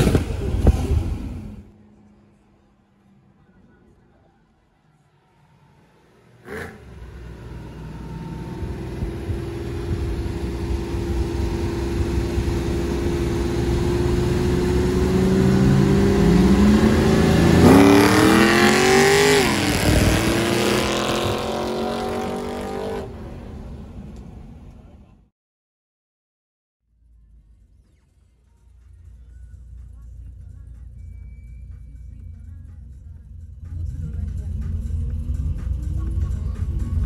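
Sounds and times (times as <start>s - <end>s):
drag car accelerating: 0.0s - 25.1s.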